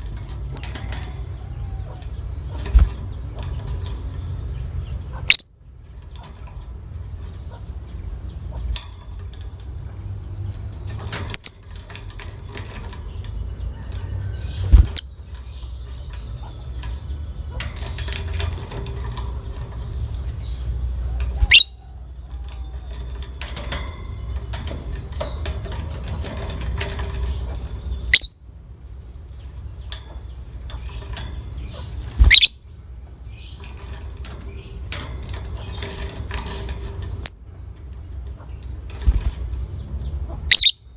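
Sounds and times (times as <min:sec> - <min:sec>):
lovebird piercing calls: 0:04.0 - 0:05.6, 0:20.2 - 0:22.9, 0:27.8 - 0:28.5, 0:30.8 - 0:32.7, 0:40.5 - 0:40.9.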